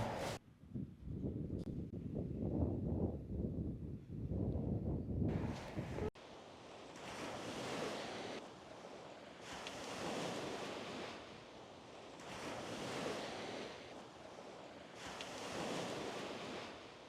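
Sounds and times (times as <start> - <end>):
sea waves washing onto beach: 5.4 - 17.0.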